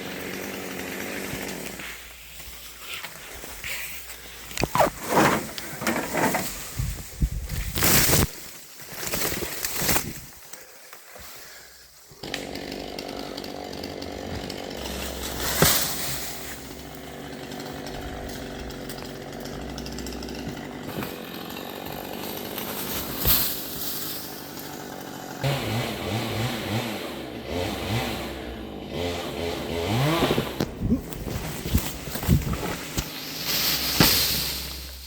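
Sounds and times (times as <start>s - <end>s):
chainsaw running and revving: 0.0s - 2.4s, 12.2s - 35.0s.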